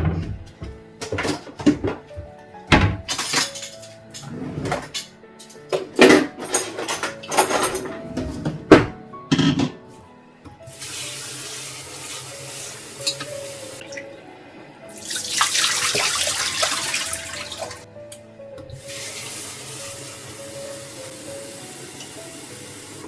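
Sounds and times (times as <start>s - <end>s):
soft background music: 0.0s - 23.0s
tap running into sink: 10.7s - 14.1s, 15.0s - 17.8s.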